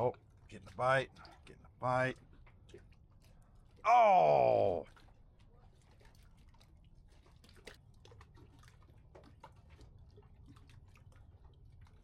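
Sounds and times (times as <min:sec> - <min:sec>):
faint irregular clicks and ticks: 0:00.0 - 0:03.9.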